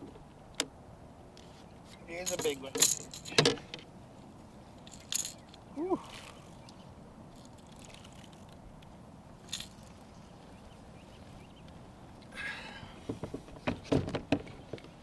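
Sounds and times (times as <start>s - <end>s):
low wind: 0.0s - 15.0s
water noise: 2.1s - 13.6s.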